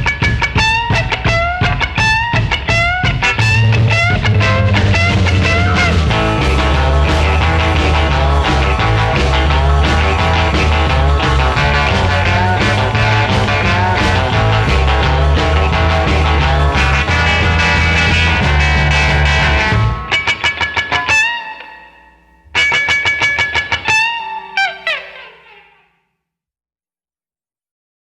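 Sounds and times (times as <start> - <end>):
bass line: 0.0 - 20.2
rock music: 0.0 - 25.9
electric guitar: 0.0 - 26.0.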